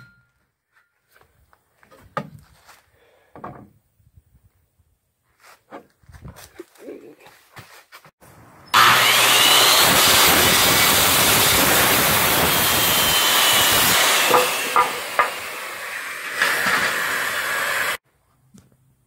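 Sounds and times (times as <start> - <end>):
power tool whirring: 8.7 - 18.0.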